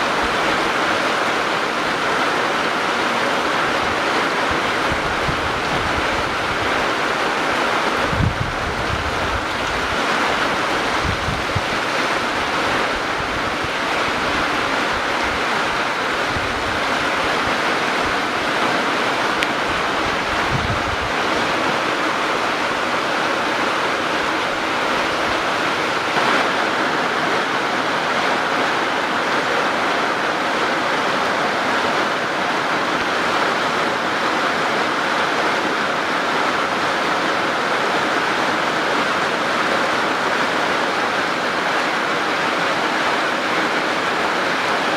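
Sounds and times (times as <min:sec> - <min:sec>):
rushing water: 0:00.0 - 0:44.9
wind buffeting microphone: 0:03.5 - 0:28.6.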